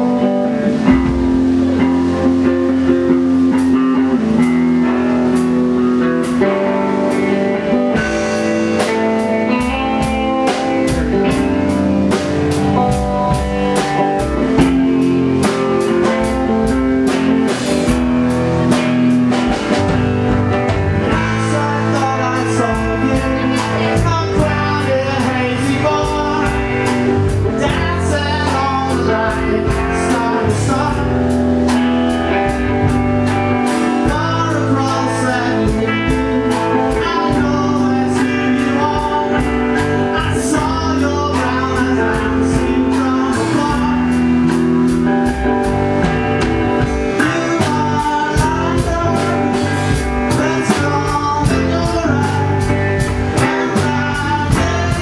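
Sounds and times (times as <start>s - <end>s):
live blues-rock band: 0.0s - 55.0s.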